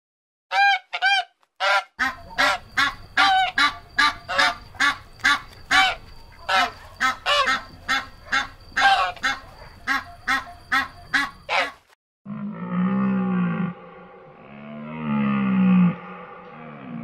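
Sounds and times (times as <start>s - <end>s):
geese honking: 0.5s - 11.9s
deep low animal call: 12.3s - 17.0s.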